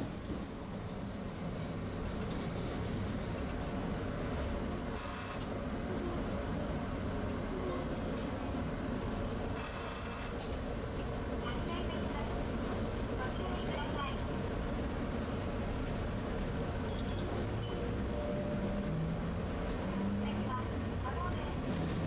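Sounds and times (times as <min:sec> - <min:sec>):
streetcar rumbling on rails: 0:00.0 - 0:22.0.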